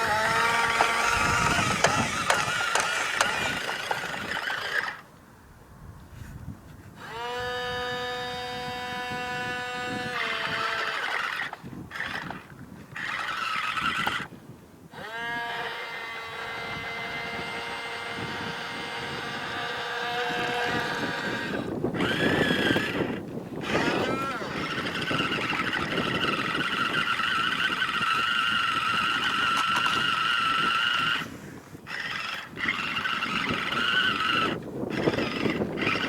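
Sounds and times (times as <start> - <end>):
toy electric motor whining: 0.0 - 5.1, 7.0 - 36.0.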